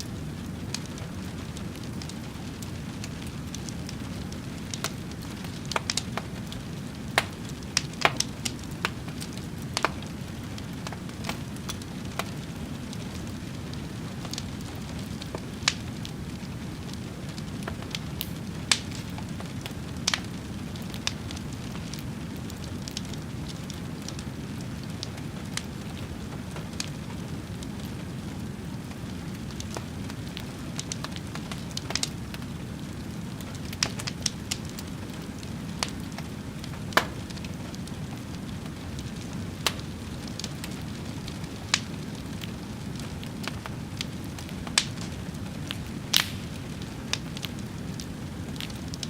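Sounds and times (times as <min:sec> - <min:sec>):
wood fire crackling: 0:00.0 - 0:49.0
low rush of burning: 0:00.1 - 0:49.0.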